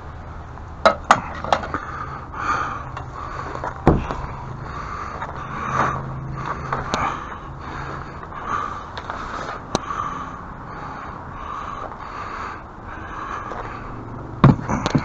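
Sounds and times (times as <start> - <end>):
heavy thump: 3.8 - 4.4, 14.4 - 15.0
sharp knocks: 3.8 - 4.4, 14.4 - 15.0.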